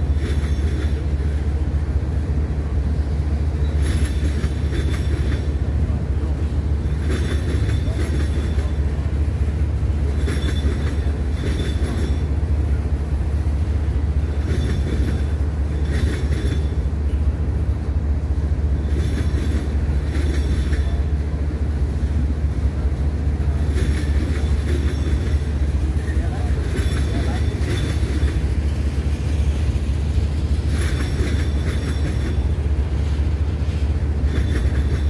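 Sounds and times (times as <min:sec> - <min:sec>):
railroad cars rumbling past: 0:00.0 - 0:35.0.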